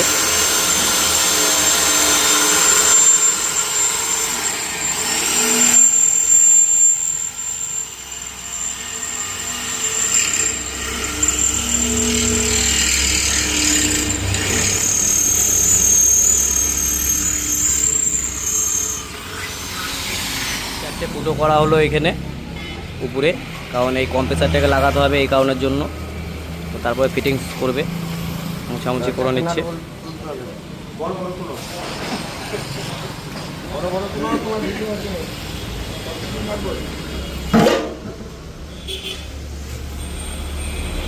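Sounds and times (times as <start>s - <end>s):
electric drill whining: 0.0s - 21.3s.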